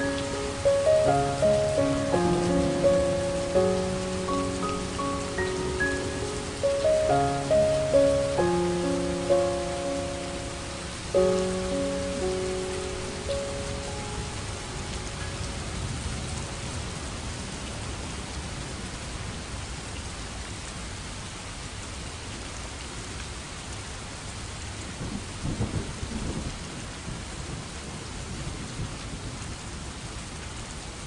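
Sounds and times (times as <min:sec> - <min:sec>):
thunder rumbling: 0:00.0 - 0:17.5
steady rain falling: 0:00.0 - 0:31.0.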